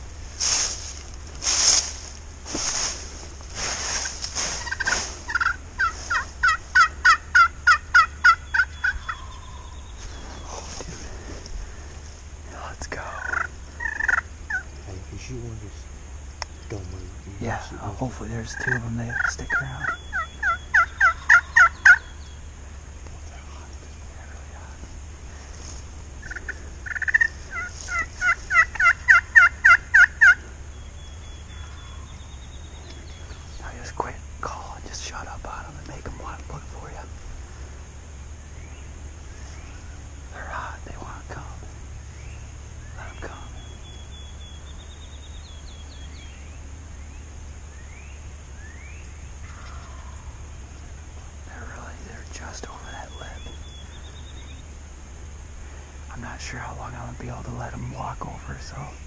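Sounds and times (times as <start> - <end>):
soft rustles: 0.0 - 6.8, 9.9 - 13.2, 23.0 - 28.9
turkey yelping: 4.4 - 9.8, 13.2 - 14.7, 18.6 - 22.2, 26.2 - 30.5.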